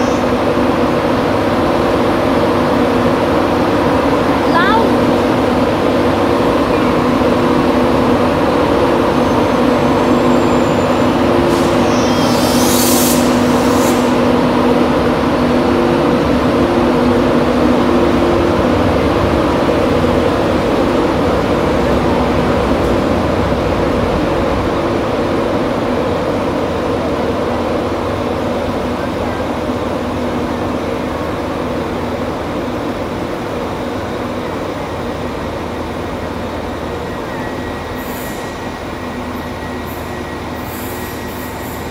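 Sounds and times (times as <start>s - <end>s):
electric locomotive hum: 0.0s - 41.9s
thin high wheel squeal: 9.2s - 14.2s, 39.6s - 41.9s.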